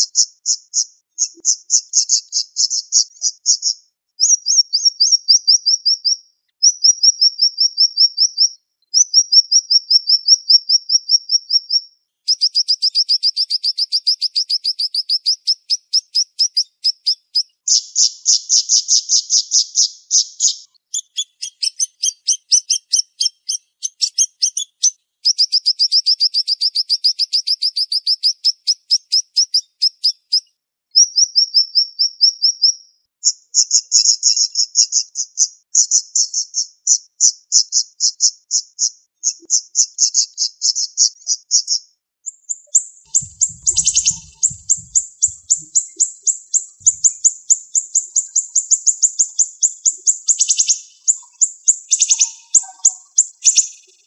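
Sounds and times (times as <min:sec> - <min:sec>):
songbird trilling: 0:42.6 - 0:54.0.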